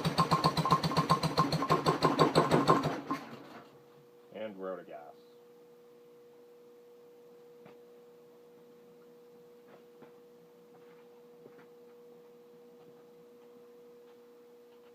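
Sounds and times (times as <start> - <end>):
faint high hum: 3.7 - 14.9.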